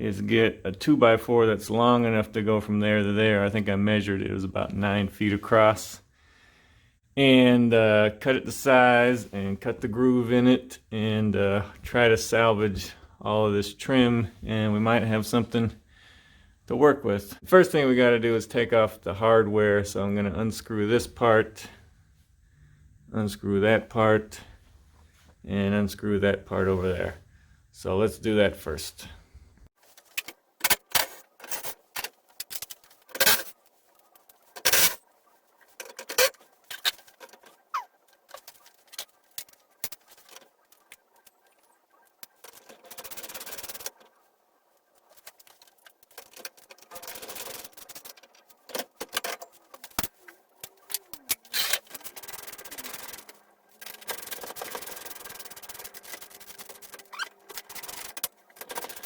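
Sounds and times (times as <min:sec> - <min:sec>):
scraping and rubbing: 0:29.8 - 0:59.0
clicks and knocks of metal tools: 0:30.0 - 0:35.0.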